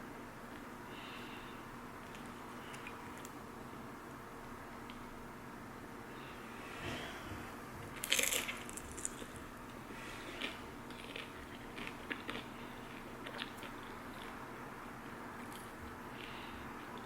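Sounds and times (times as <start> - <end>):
person chewing crunchy food: 7.9 - 14.6.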